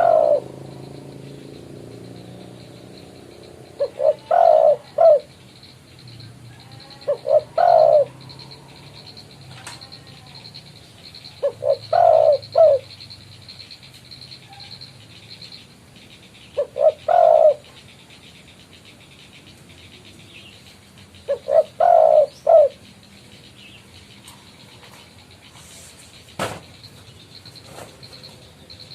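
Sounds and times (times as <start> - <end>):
dove cooing: 0.0 - 13.0, 16.5 - 17.8, 21.2 - 22.9.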